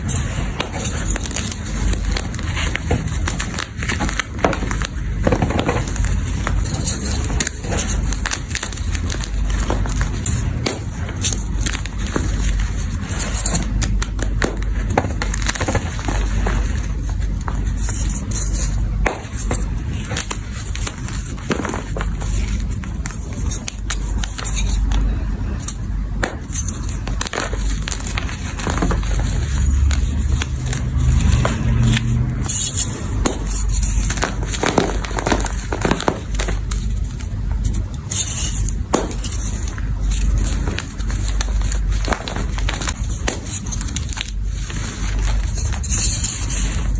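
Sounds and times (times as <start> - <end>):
chalk crunching and crackling: 0.0 - 46.9
low steady rumble: 0.0 - 46.9.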